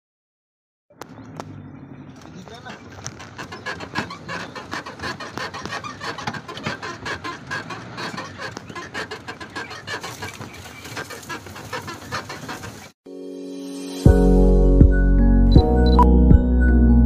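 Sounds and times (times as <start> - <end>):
birds chattering: 1.0 - 12.9.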